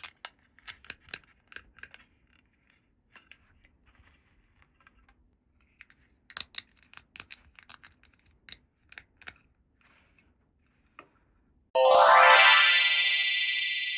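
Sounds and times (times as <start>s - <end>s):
plastic toy pieces clicking: 5.9s - 9.4s.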